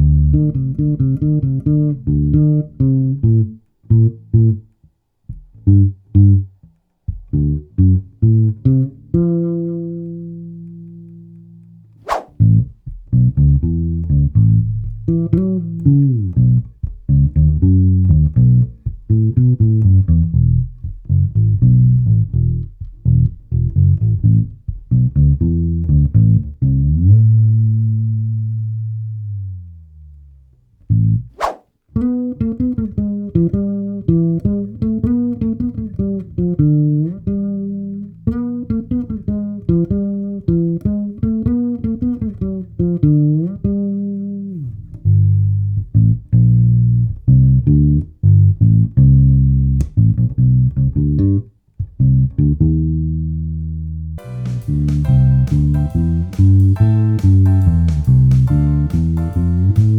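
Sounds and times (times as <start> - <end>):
sliding plucked bass line: 0.0 - 59.9
sharp click: 12.0 - 12.4.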